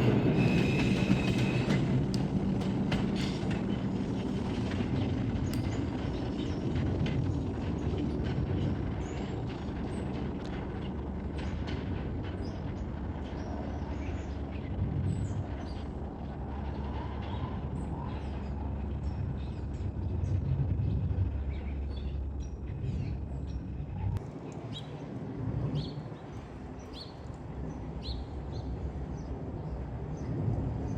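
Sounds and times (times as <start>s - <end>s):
subway train rumbling on track: 0.0s - 30.9s
short clicks of train: 0.6s - 3.6s.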